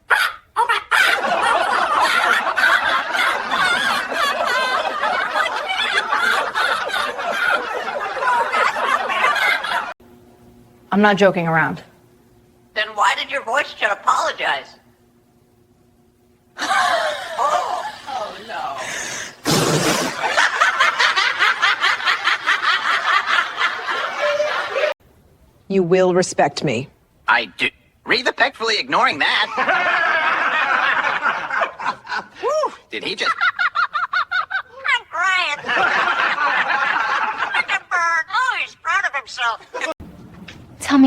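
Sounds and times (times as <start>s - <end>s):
high-pitched snickering laughter: 0.1s - 9.9s
group of people laughing: 0.2s - 10.0s, 16.6s - 18.6s, 19.8s - 25.0s, 29.4s - 38.5s.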